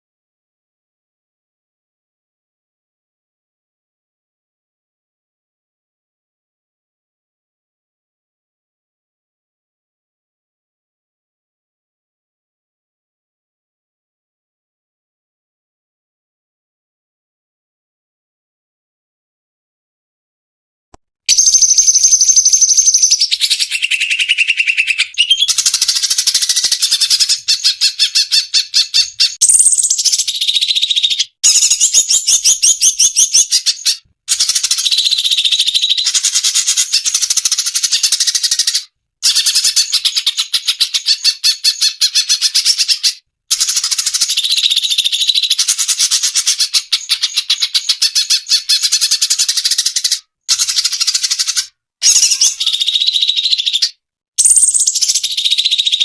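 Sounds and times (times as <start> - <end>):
bird chattering trills and whistles: 21.3 - 56.0.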